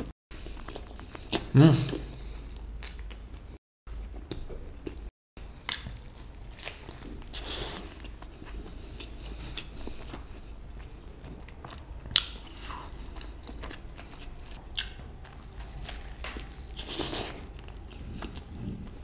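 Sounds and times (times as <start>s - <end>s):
person chewing: 0.0s - 19.0s.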